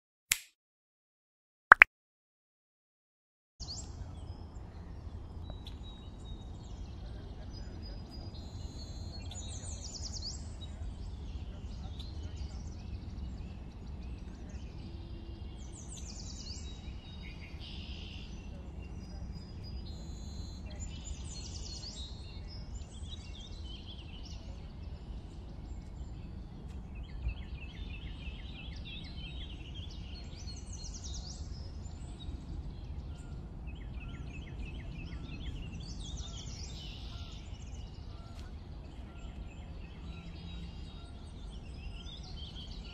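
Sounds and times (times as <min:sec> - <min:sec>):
sharp click: 0:00.3 - 0:00.5
small birds chirping: 0:03.6 - 0:42.9.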